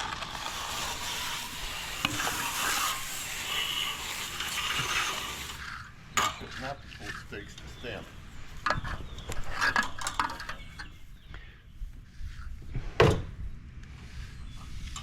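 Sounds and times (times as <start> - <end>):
hand tools clinking and knocking: 8.6 - 11.0.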